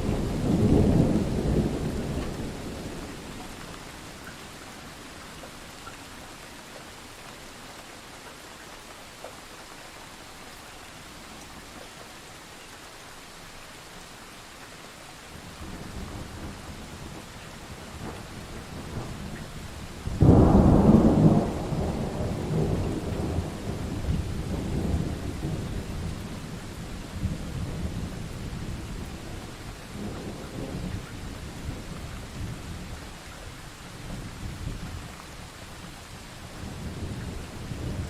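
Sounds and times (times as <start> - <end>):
thunder rumbling: 0.0 - 3.8, 15.6 - 33.1, 36.6 - 38.0
steady rain: 0.0 - 38.0.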